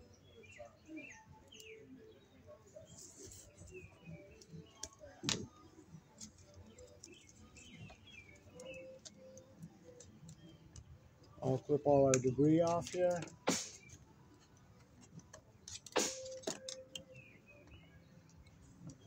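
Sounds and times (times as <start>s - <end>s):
faint bird chirps: 0.0s - 11.9s
hand tool clicks and rustles: 12.1s - 17.2s.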